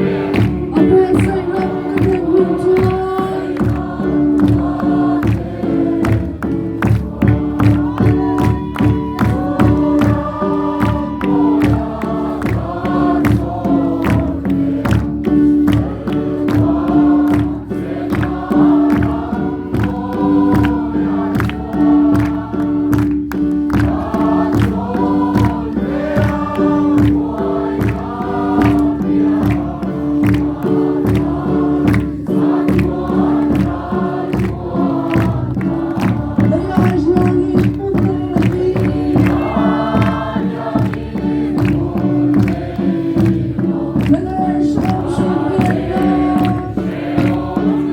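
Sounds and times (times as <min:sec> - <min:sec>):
choir singing a hymn: 0:00.0 - 0:47.9
steady percussive beat: 0:00.0 - 0:47.9.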